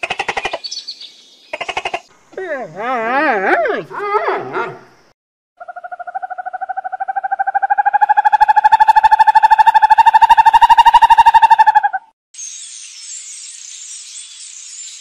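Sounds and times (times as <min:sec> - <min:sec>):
owl pulsed call: 0:05.6 - 0:12.1
wavering whine-like animal call: 0:05.6 - 0:12.1.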